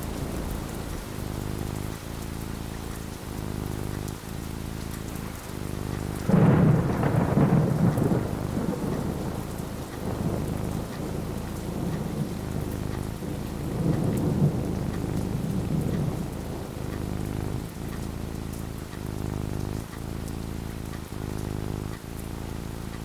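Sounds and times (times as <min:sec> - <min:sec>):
steady rain falling: 0:00.0 - 0:23.0
thunder clap and rumble: 0:00.0 - 0:23.0.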